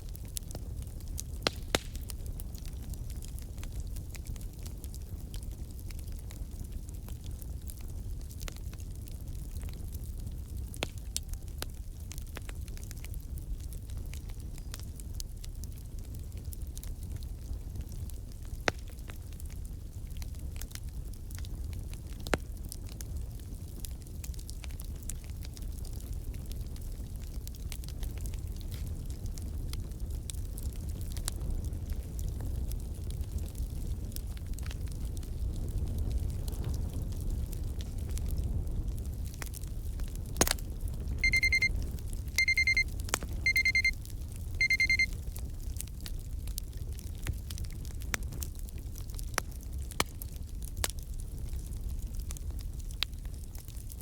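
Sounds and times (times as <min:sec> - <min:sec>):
low rumble of flames: 0:00.0 - 0:43.4, 0:44.0 - 0:54.0
wood fire crackling: 0:00.0 - 0:54.0
loud fire pops: 0:00.3 - 0:04.2, 0:17.8 - 0:19.3, 0:33.4 - 0:41.0
alarm clock beeping: 0:41.2 - 0:41.7, 0:42.4 - 0:42.8, 0:43.5 - 0:43.9, 0:44.6 - 0:45.1.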